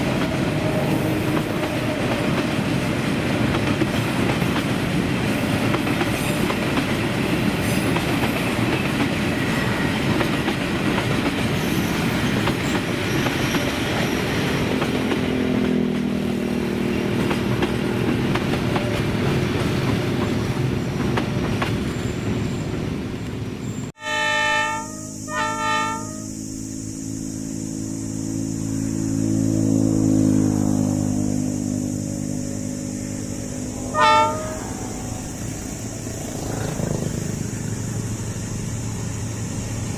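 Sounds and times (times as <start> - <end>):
diesel locomotive engine running: 0.0 - 39.9
train rumbling on rails: 0.0 - 39.9
locomotive horn blasts: 24.0 - 26.6, 33.6 - 35.3.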